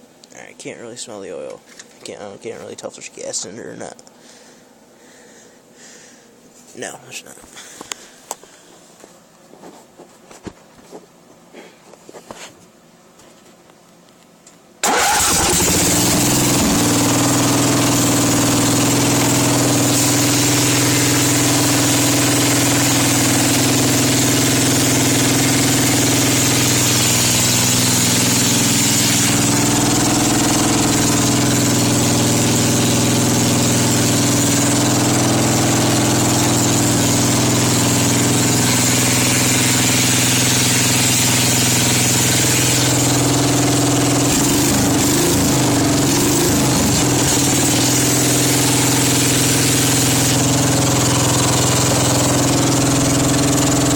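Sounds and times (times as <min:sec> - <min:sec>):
engine starting and running: 0:14.8 - 0:53.9.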